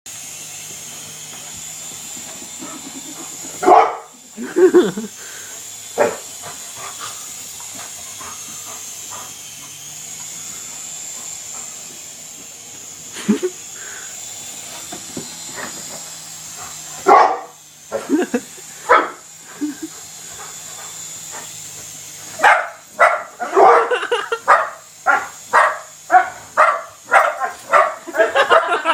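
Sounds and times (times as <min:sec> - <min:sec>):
dog barking: 0:03.6 - 0:04.1, 0:06.0 - 0:06.2, 0:17.1 - 0:17.5, 0:18.9 - 0:19.2, 0:22.4 - 0:28.8.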